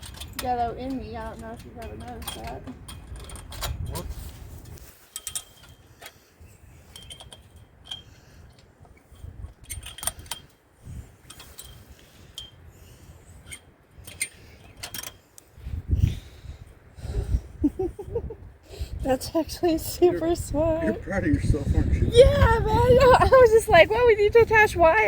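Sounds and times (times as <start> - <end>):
metal springs clinking and rattling: 0.0 - 6.2, 6.8 - 10.6, 11.2 - 12.7, 13.3 - 15.2.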